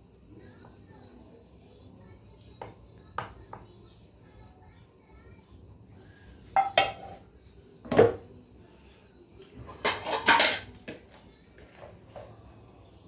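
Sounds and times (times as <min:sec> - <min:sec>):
dishes and utensils clattering: 0:06.5 - 0:07.2, 0:07.9 - 0:08.3, 0:09.6 - 0:12.3.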